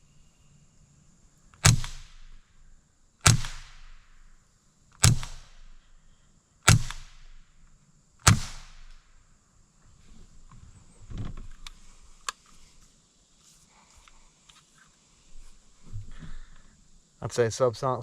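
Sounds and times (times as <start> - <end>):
suppressed rifle shots: 1.6 - 2.4, 3.2 - 4.3, 5.0 - 5.8, 6.7 - 7.4, 8.2 - 9.1.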